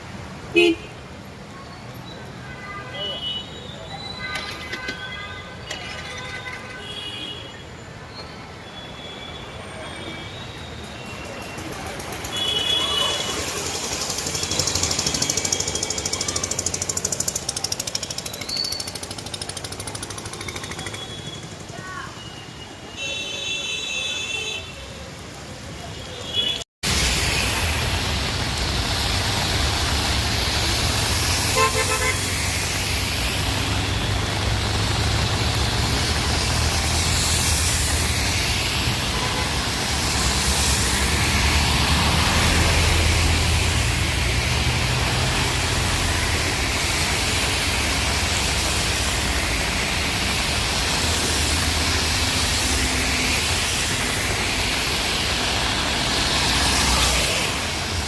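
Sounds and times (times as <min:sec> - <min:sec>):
road traffic in heavy rain: 0:00.0 - 0:58.0
car horn toot: 0:00.6 - 0:00.9, 0:12.3 - 0:13.4, 0:31.6 - 0:32.2.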